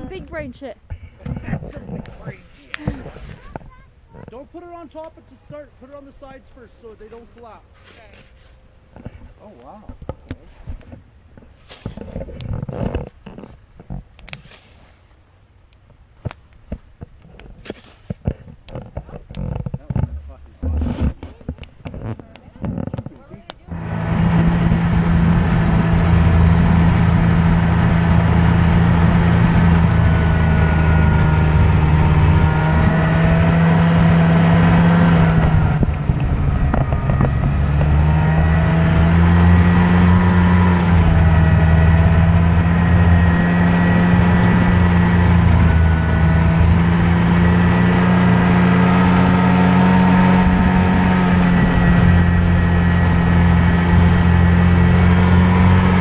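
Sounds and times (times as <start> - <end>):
vehicle engine running: 23.6 - 56.0.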